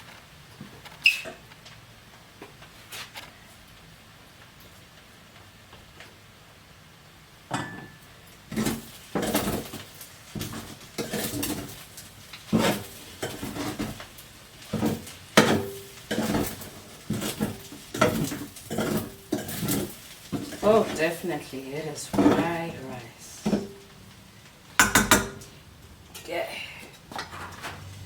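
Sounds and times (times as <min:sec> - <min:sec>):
spoon scraping and knocking dishes: 0:14.7 - 0:21.0, 0:24.8 - 0:25.5.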